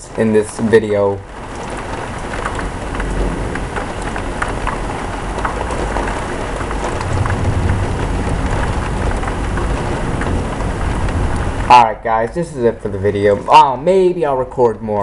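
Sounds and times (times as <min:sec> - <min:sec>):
heavy rain pouring: 0:00.0 - 0:15.0
low thunder rumble: 0:01.2 - 0:14.0.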